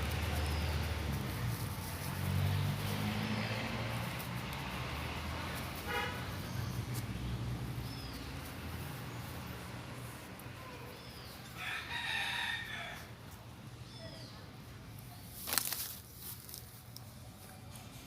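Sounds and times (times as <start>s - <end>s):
bird chirping: 7.7s - 9.4s.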